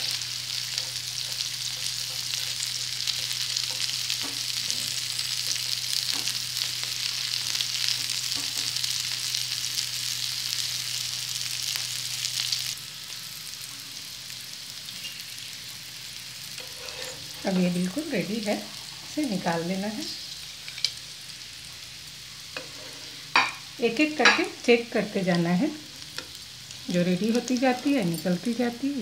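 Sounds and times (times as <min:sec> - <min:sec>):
fritters sizzling in oil: 0:00.0 - 0:29.0.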